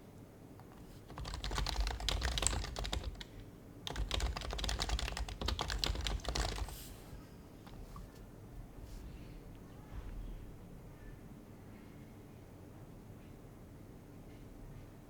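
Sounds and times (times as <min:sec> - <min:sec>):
keyboard typing: 0:00.6 - 0:07.1.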